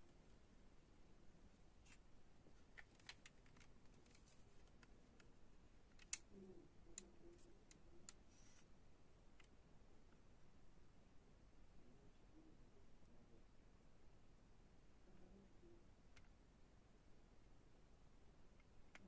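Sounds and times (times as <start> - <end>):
small clicks and taps: 5.9 - 6.3.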